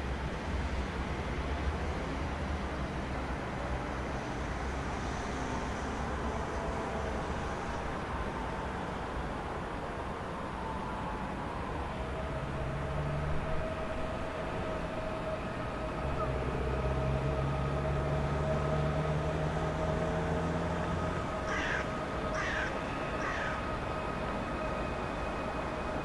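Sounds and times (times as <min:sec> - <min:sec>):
electric train humming: 0:00.0 - 0:26.0
crow cawing: 0:21.5 - 0:23.7.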